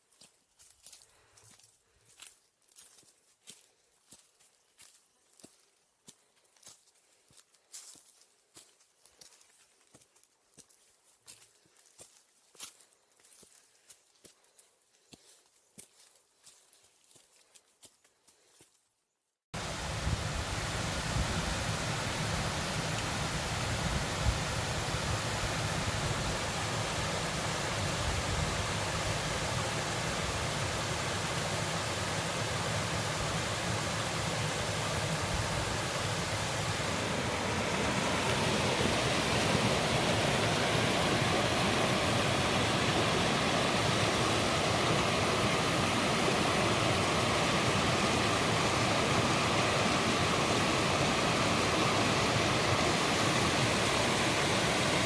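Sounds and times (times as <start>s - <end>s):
water rushing at waterfall: 19.6s - 55.0s.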